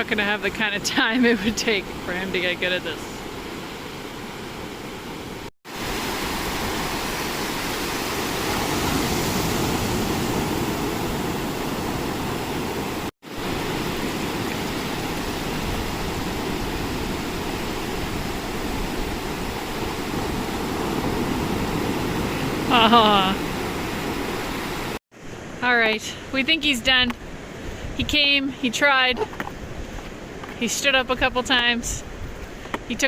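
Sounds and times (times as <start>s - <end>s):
ocean surf breaking: 0.0s - 25.7s.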